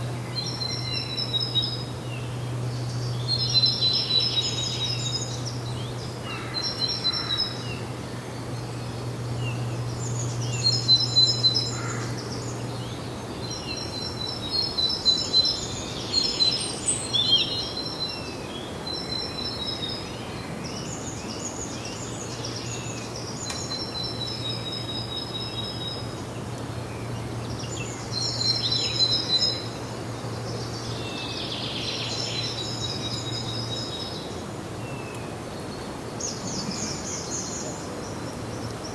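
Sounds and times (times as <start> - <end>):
steady low hum: 0.0 - 15.8
songbirds singing trilled phrases: 0.0 - 38.9.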